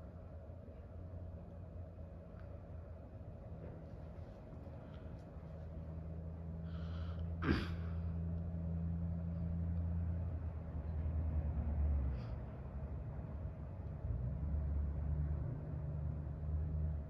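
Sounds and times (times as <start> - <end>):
ceiling fan motor hum: 0.0 - 11.6.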